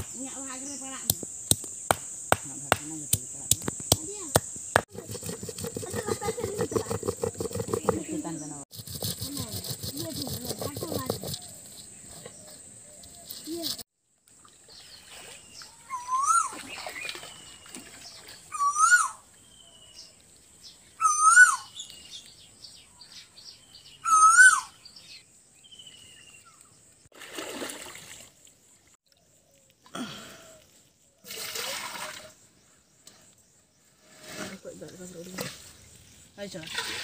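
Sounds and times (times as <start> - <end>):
high-pitched insect whine: 0.0 - 7.9
bird calling: 15.6 - 20.1, 20.9 - 26.7
water splashing by hand: 16.2 - 18.5, 27.1 - 28.5, 31.3 - 32.3.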